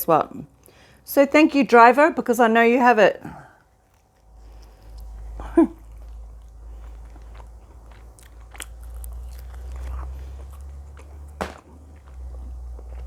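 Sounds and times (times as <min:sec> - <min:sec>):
steady low hum: 0:00.0 - 0:13.0
person chewing food: 0:03.3 - 0:13.0
wet mouth clicks: 0:04.2 - 0:12.3.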